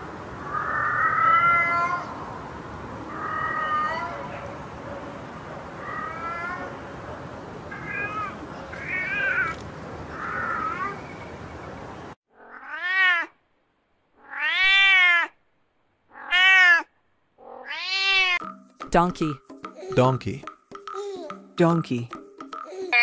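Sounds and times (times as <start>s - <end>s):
cat meowing: 0.5s - 2.2s, 3.1s - 4.4s, 5.8s - 6.8s, 7.7s - 11.0s, 12.3s - 13.4s, 14.2s - 15.4s, 16.1s - 18.4s.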